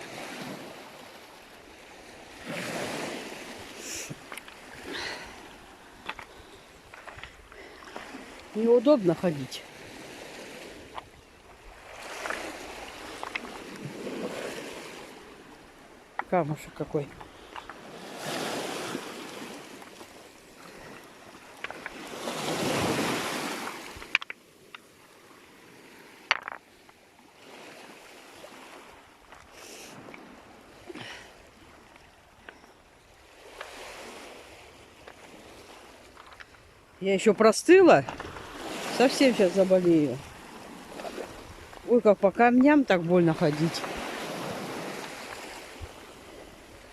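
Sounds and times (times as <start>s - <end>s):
waves washing onto stony shore: 0.0s - 46.9s
stones clicking underfoot: 4.2s - 4.7s, 6.0s - 7.4s, 12.1s - 13.9s, 17.1s - 17.8s, 21.6s - 22.1s, 23.7s - 24.9s, 26.2s - 27.0s, 36.0s - 36.6s.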